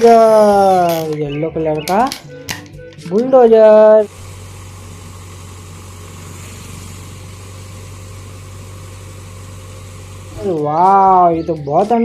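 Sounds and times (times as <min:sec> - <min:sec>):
engine idling hum: 0:00.0 - 0:11.9
hiss: 0:04.1 - 0:10.6.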